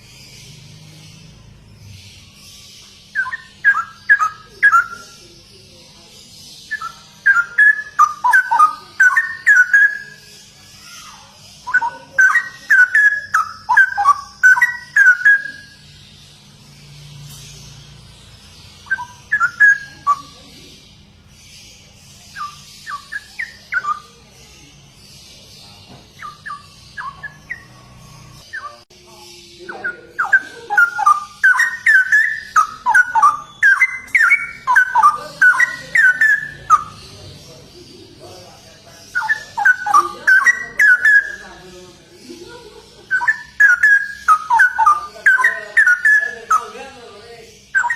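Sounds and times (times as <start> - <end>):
bulbul singing: 0.0 - 47.9.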